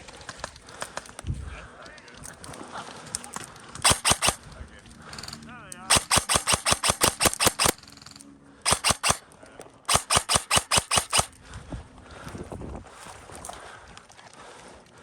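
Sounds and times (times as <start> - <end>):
airsoft gun shots: 3.8 - 4.4, 5.1 - 9.2, 9.9 - 11.3.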